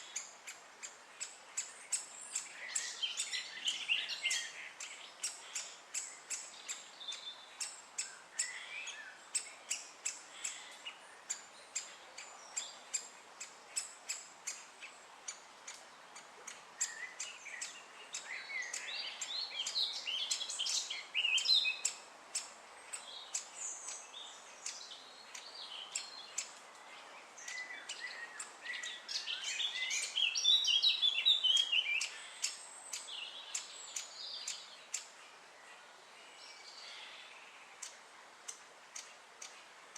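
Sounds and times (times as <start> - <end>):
woodpecker short sharp calls: 0.0 - 24.0
woodpecker chicks chattering: 0.0 - 26.6.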